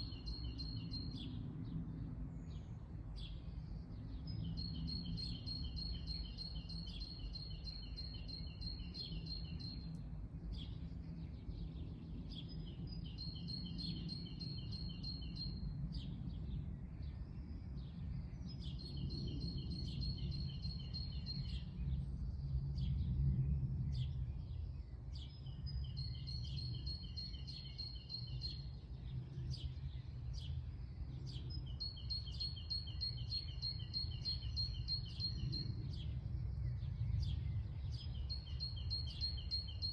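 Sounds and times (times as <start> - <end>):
steady low rumble: 15.6 - 26.8, 34.7 - 39.2
songbird trilling: 25.7 - 28.8, 31.3 - 35.7, 37.9 - 39.9.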